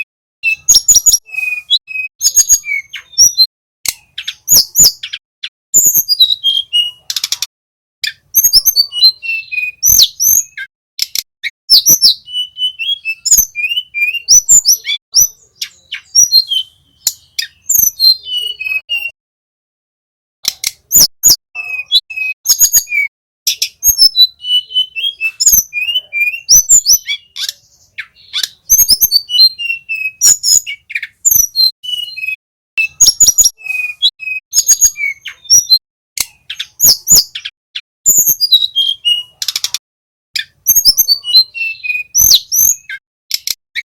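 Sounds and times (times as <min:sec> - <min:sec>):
small birds chirping and trilling: 0:00.0 - 0:19.2, 0:20.4 - 0:43.9
sharp clicks: 0:11.0 - 0:11.3, 0:20.4 - 0:20.8, 0:43.3 - 0:43.6.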